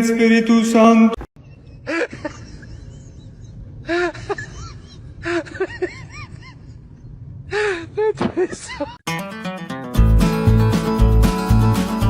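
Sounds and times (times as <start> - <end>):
low background rumble: 1.4 - 9.0.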